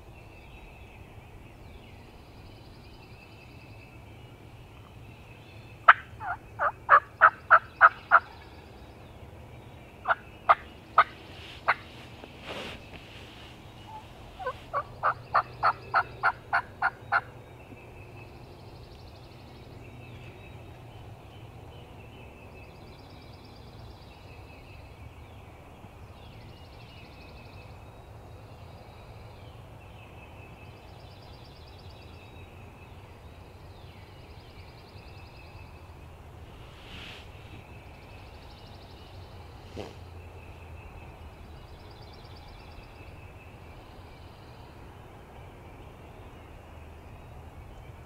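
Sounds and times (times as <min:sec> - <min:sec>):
faint songbirds singing: 0:00.0 - 0:48.0
turkey calling: 0:05.9 - 0:08.3, 0:10.0 - 0:12.0, 0:13.8 - 0:17.3.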